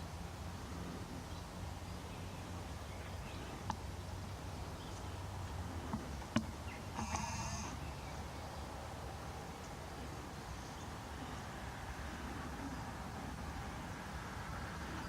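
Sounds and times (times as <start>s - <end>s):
steady low hum: 0.0s - 15.0s
deer bleat: 7.0s - 7.8s.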